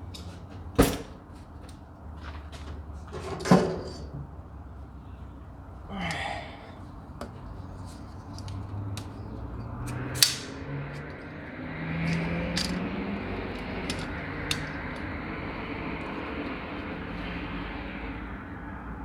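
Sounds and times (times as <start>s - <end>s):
engine running: 7.0s - 19.0s
metal clicks and clanks: 8.2s - 15.2s.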